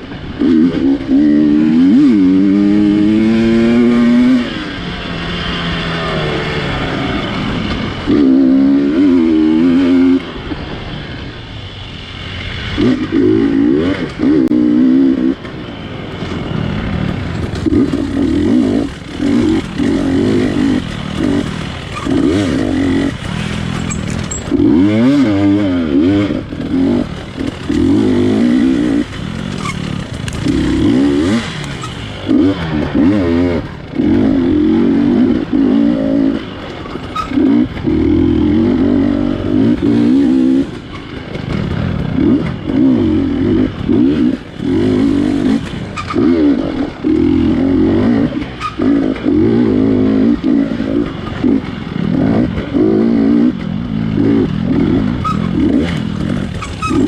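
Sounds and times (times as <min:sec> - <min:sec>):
dirt bike engine revving: 0:00.0 - 0:57.0
bike clattering over ground: 0:17.1 - 0:24.6.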